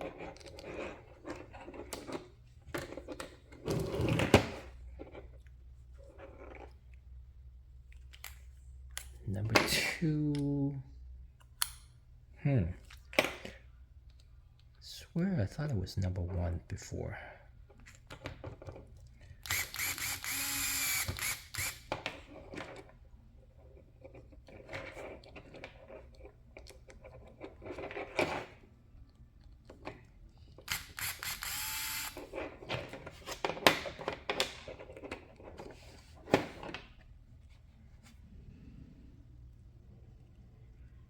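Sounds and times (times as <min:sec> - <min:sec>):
whirring ratcheting bursts: 0:19.4 - 0:21.8, 0:30.7 - 0:32.2.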